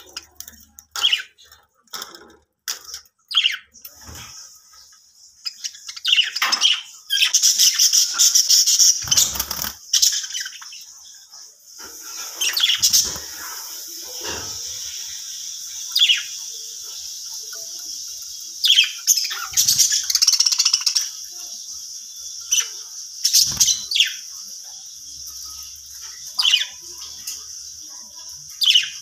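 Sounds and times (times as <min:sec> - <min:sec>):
budgies chirping: 0:00.0 - 0:29.0
rapid chattering warble: 0:11.0 - 0:29.0.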